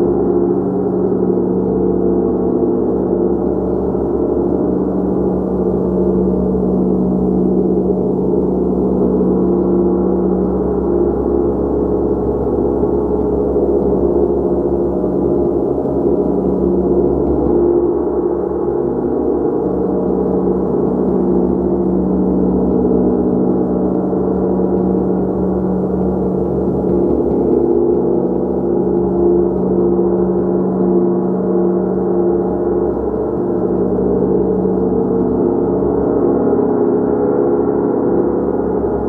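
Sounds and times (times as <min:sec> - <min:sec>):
gong droning: 0:13.5 - 0:39.0.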